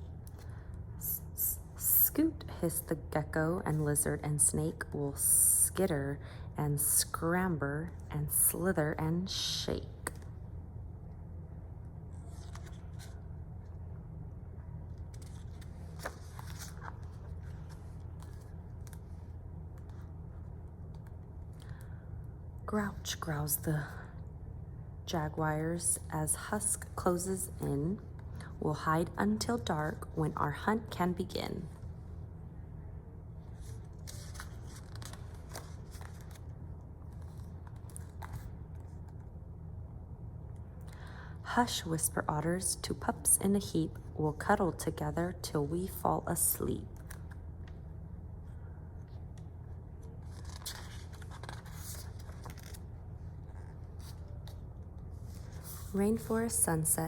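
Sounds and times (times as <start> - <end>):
steady low hum: 0.0 - 57.0
paper pages rustling: 12.1 - 13.3, 14.9 - 20.1, 33.4 - 39.2, 49.1 - 56.6.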